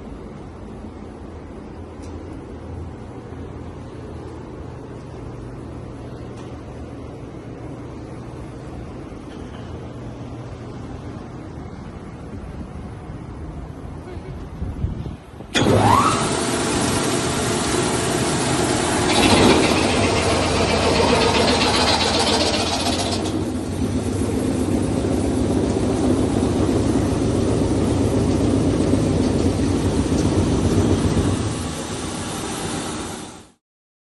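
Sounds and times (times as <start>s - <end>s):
grinder machine running: 15.6s - 33.5s.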